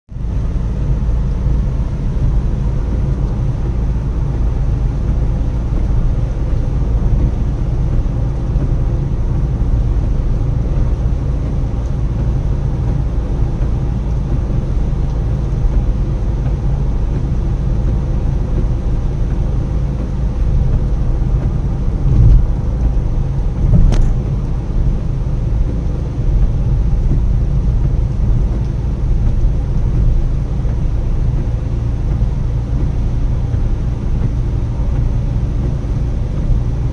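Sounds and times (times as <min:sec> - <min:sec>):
tyres and engine rumble: 0:00.1 - 0:36.9
sharp click: 0:23.8 - 0:24.2.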